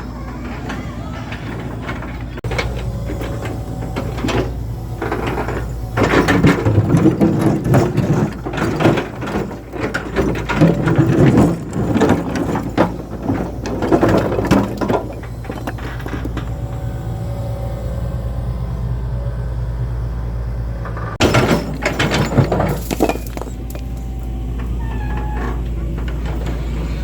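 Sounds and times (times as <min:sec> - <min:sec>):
mechanical clattering and knocking: 0:00.0 - 0:17.2, 0:20.8 - 0:27.0
low engine hum: 0:00.0 - 0:27.0.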